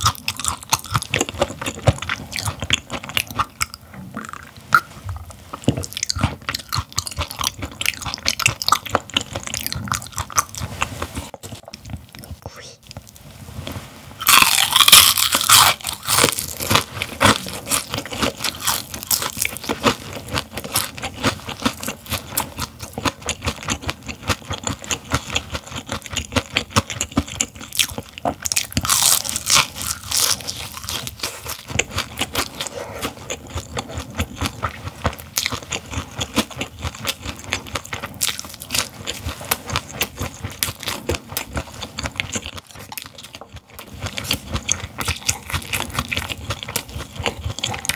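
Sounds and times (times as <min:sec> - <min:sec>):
crunchy bites: 0:00.0 - 0:04.9, 0:14.2 - 0:23.9, 0:24.5 - 0:32.7
quick chewing: 0:14.2 - 0:47.9.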